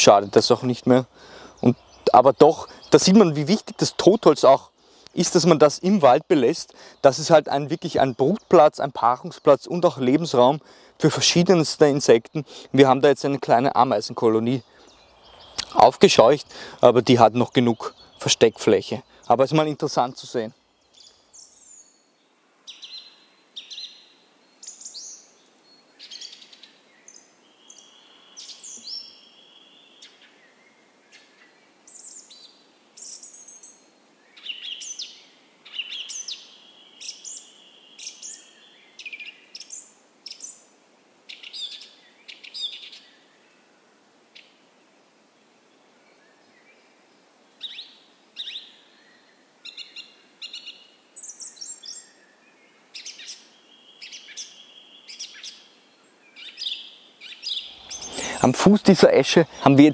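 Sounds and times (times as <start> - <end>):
songbirds chirping and whistling: 0.0 - 40.7, 41.3 - 43.6, 46.1 - 59.9
held bird whistle: 57.5 - 58.5.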